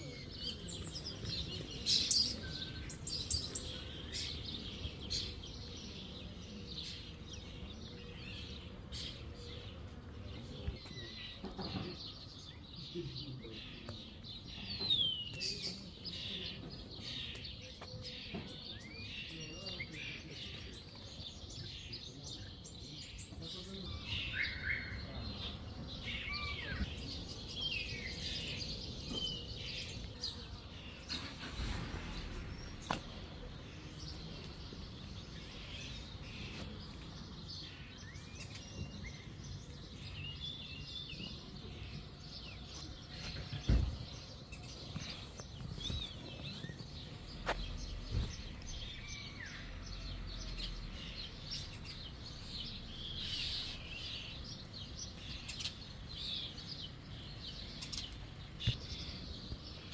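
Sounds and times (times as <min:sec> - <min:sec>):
songbirds chirping and singing: 0:00.0 - 0:59.9
low outdoor rumble: 0:26.7 - 0:37.1.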